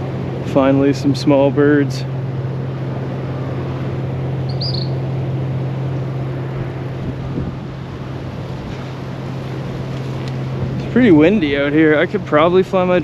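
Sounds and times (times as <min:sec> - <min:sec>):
constant low hum: 0:00.0 - 0:13.0
steady wind: 0:00.0 - 0:13.0
high bird call: 0:04.4 - 0:05.1.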